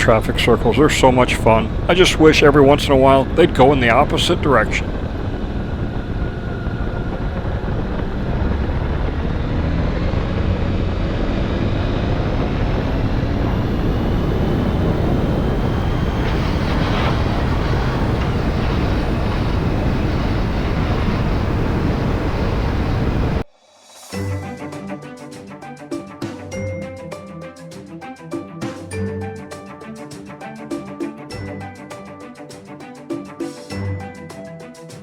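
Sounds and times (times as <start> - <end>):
motorcycle engine humming: 0.0 - 23.4.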